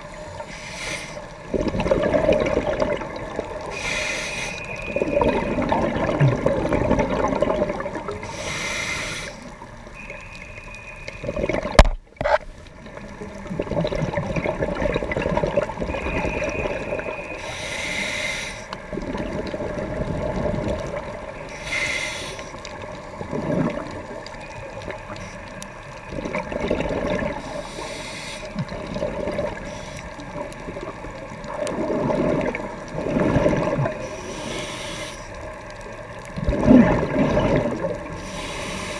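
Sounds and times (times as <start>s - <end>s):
exhaled air bubbling: 0.0s - 38.9s
regulator inhalation hiss: 0.1s - 1.5s, 3.7s - 5.1s, 8.2s - 9.6s, 17.3s - 18.8s, 21.5s - 22.6s, 27.4s - 28.6s, 29.6s - 30.3s, 34.0s - 35.5s, 38.2s - 38.9s.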